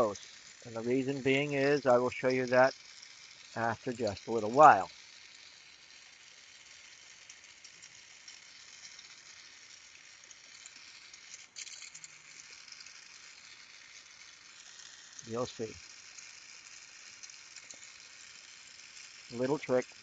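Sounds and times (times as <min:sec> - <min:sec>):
torch flame hissing: 0:00.0 - 0:05.8, 0:10.6 - 0:20.0.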